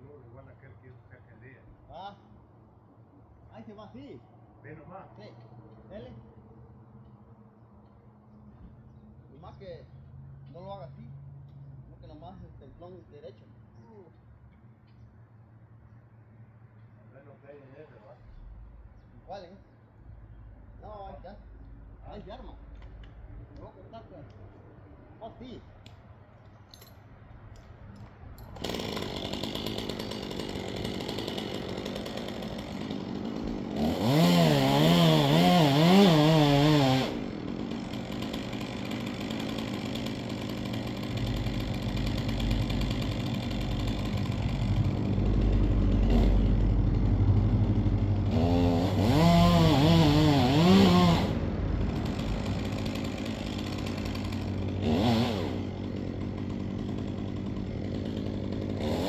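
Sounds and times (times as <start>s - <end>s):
chainsaw engine revving: 28.6s - 59.0s.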